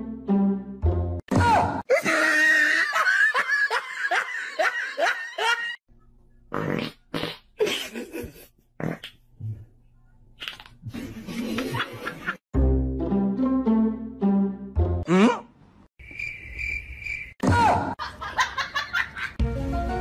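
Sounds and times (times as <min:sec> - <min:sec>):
laughter sound effect: 0:01.9 - 0:05.8, 0:07.6 - 0:08.5, 0:10.9 - 0:12.4, 0:17.8 - 0:19.4.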